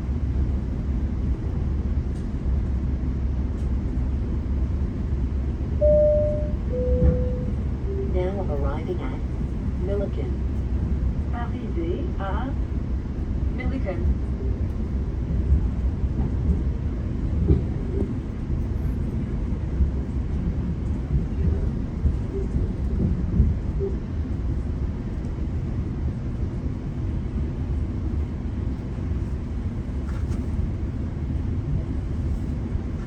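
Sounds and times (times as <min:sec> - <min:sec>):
train rumble from inside coach: 0:00.0 - 0:33.0.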